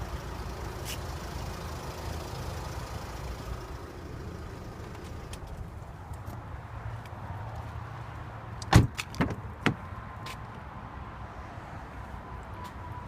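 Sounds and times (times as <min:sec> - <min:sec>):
diesel engine running steadily: 0:00.0 - 0:07.6.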